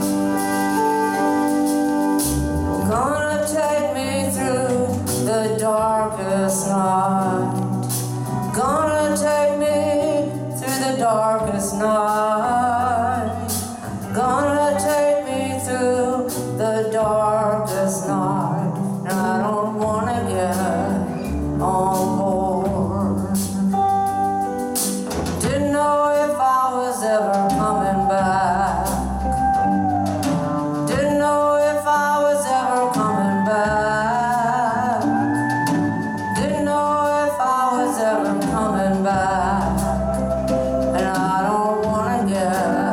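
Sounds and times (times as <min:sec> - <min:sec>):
bass line: 0:00.0 - 0:26.4, 0:27.0 - 0:42.9
drums: 0:00.0 - 0:42.9
sliding lead melody: 0:00.0 - 0:42.9.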